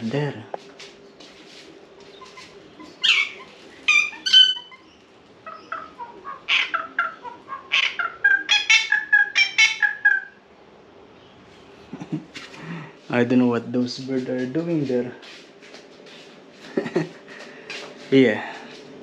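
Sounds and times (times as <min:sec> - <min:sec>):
birds squawking: 0:02.1 - 0:10.5.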